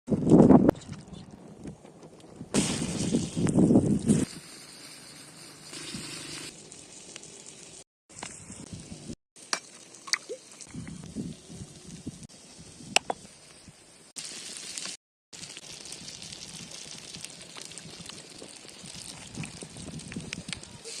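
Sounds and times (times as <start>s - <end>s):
frying sizzle: 4.0s - 12.9s, 14.1s - 21.0s.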